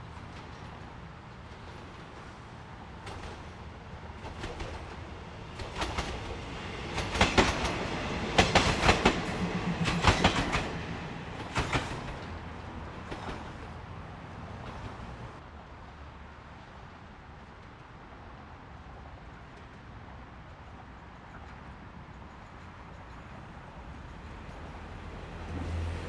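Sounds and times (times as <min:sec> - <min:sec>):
train rumble: 0:00.0 - 0:26.0
train wheels clacking: 0:03.0 - 0:13.8.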